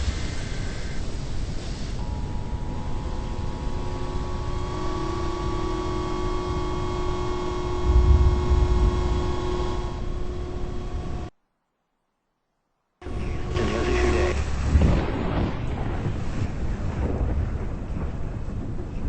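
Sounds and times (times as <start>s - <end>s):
wind whistling: 0.0s - 11.3s
strong wind buffeting: 7.8s - 11.3s, 13.1s - 19.0s.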